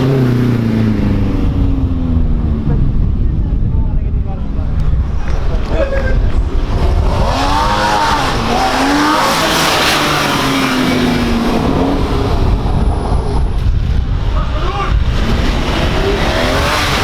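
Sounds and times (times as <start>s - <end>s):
sports car revving and passing: 4.4s - 17.0s.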